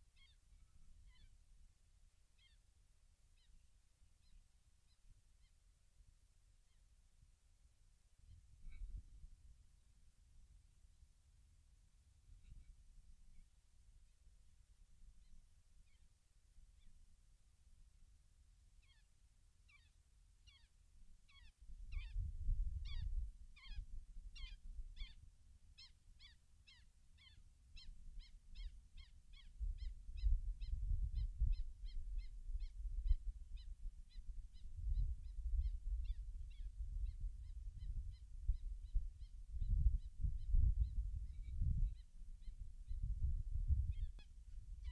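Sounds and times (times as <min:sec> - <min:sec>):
wind rumble on microphone: 0:08.2 - 0:09.6, 0:21.6 - 0:25.4, 0:29.3 - 0:44.9.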